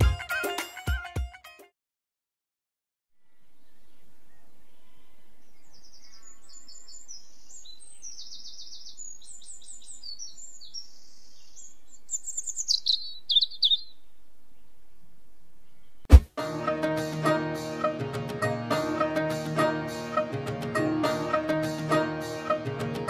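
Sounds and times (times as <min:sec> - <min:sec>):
birds singing: 0:03.2 - 0:14.8, 0:15.6 - 0:16.1.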